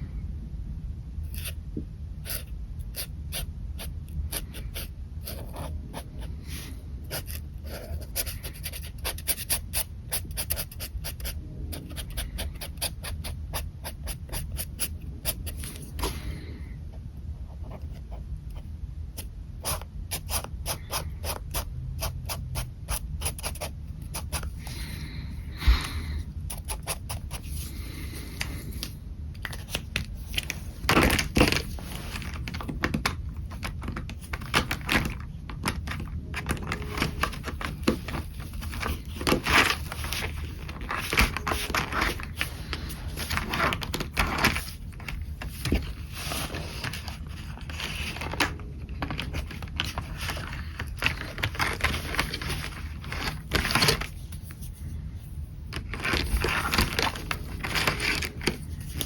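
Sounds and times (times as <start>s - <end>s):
pen scratching on paper: 1.3s - 1.6s, 2.2s - 6.3s, 7.0s - 15.9s, 19.2s - 24.6s, 26.5s - 27.6s.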